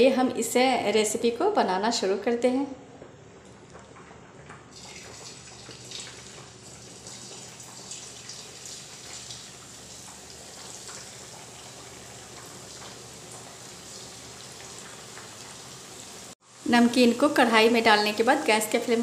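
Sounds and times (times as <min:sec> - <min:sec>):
dough sizzling and crackling in oil: 0:04.6 - 0:19.0.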